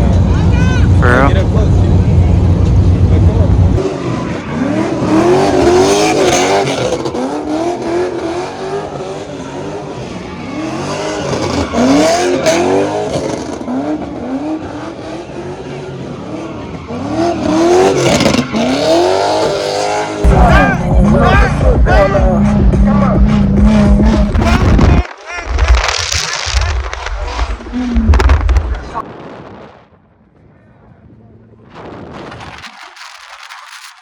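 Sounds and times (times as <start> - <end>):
car engine revving: 0.0 - 29.2
tire squeal: 3.8 - 21.4
music: 20.2 - 25.0.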